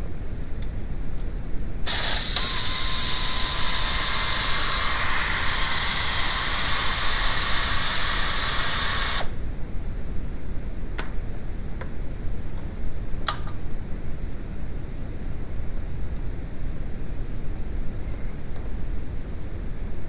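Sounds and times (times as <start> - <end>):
loud steady hiss: 1.7 - 9.5.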